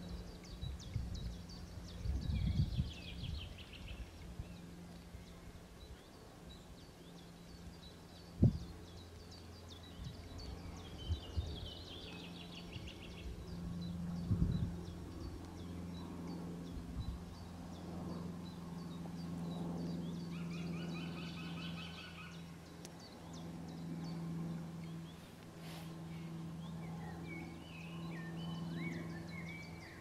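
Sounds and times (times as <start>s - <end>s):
bird chirping: 0.0s - 25.2s, 26.1s - 30.0s
steady low hum: 0.0s - 30.0s
bird trill: 20.0s - 22.5s.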